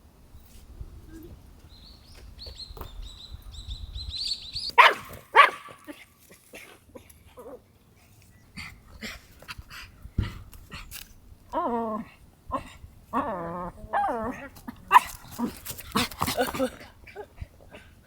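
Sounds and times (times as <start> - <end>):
dog barking: 4.8 - 5.9.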